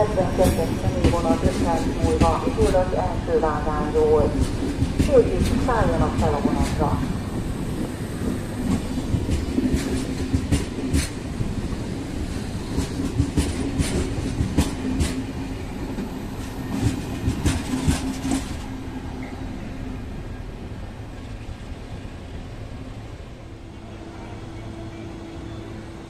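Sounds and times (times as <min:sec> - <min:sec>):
steady train hum: 0:00.0 - 0:26.0
train wheels clicking over rail joints: 0:07.4 - 0:11.5, 0:12.3 - 0:15.3, 0:15.9 - 0:19.3.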